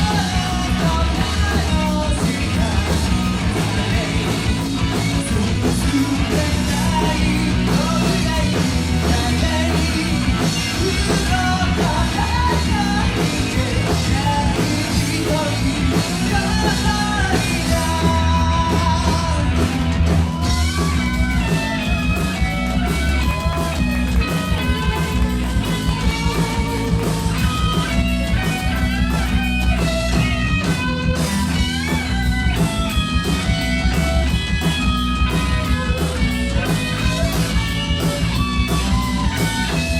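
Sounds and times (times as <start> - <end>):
person singing: 0.0 - 29.4
drums at a steady beat: 0.0 - 39.9
electric guitars: 0.0 - 39.9.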